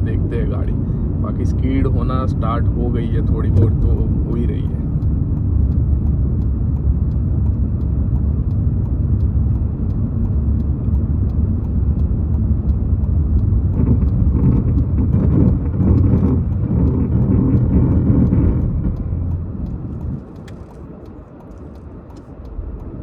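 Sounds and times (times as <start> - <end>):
car driving on snowy road: 0.0 - 23.0
rough noisy sound: 13.6 - 22.3.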